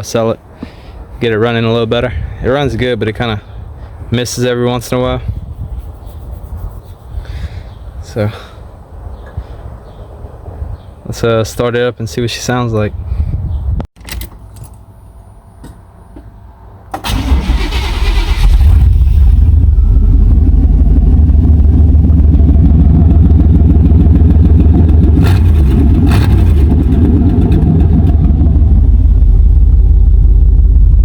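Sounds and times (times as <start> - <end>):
man talking: 0.0 - 0.4, 1.2 - 3.5, 4.1 - 5.3, 8.0 - 8.6, 11.0 - 13.0
engine starter cranking: 16.9 - 19.5
truck engine idling loudly: 19.4 - 31.0.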